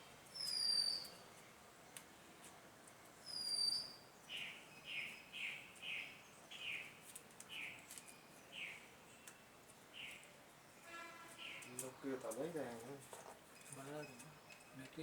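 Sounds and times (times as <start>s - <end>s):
bird calls: 0.3s - 1.2s, 3.2s - 12.1s.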